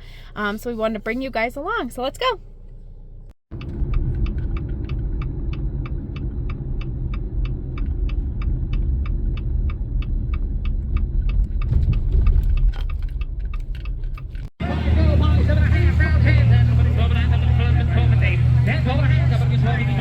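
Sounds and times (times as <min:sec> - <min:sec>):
car engine and road rumble: 0:00.0 - 0:20.0
turn signal ticking: 0:03.5 - 0:20.0.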